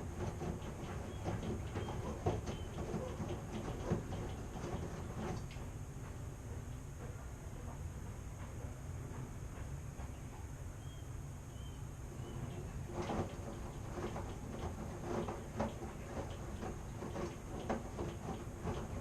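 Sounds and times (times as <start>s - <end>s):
washing machine drum knocking: 0.0s - 5.5s, 12.8s - 19.0s
washing machine rumbling: 0.0s - 19.0s.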